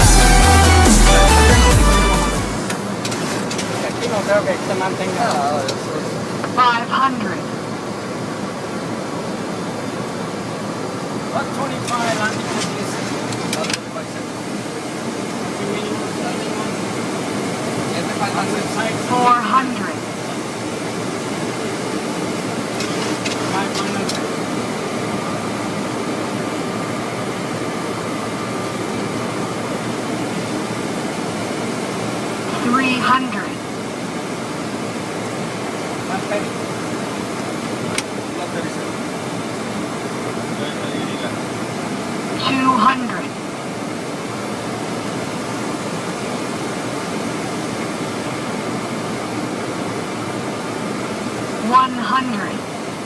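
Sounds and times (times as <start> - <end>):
airflow over cockpit: 0.0 - 53.0
jet engines humming: 0.0 - 53.0
faint steady high tone: 40.5 - 41.4.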